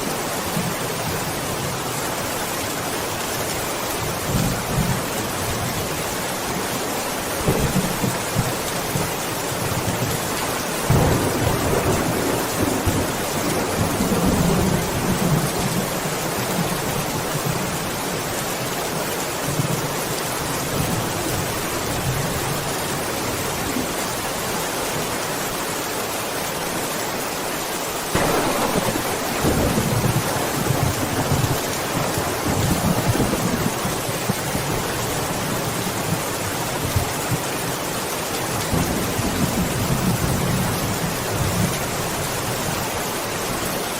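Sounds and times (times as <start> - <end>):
steady rain: 0.0 - 43.9
thunder rumbling: 10.9 - 16.7, 28.1 - 36.3.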